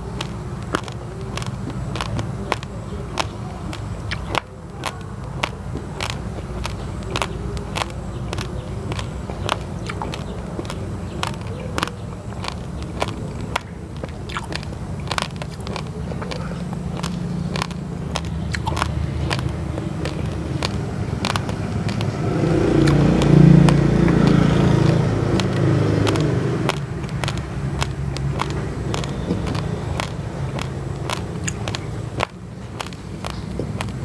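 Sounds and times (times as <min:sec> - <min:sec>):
chewing raw rice crunching: 0:00.0 - 0:34.0
motor vehicle passing: 0:00.0 - 0:34.0.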